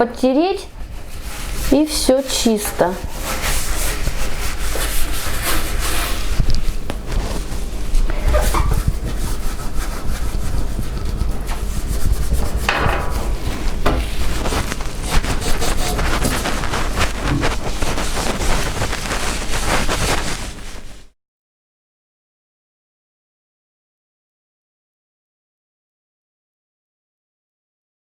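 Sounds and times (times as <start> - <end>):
cloth scrubbing stove top: 0.7 - 21.2.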